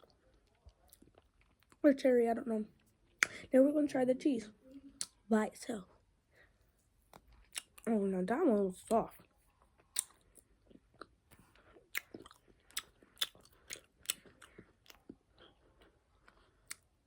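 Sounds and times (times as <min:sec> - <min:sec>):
chewing gummy candy: 0:00.0 - 0:01.9, 0:07.1 - 0:07.9, 0:08.8 - 0:17.0.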